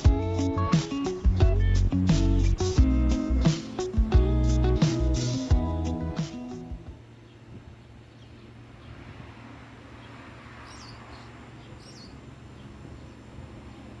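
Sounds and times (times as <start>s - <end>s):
low hum and hiss: 0.0s - 14.0s
small bird chirping: 7.0s - 13.9s.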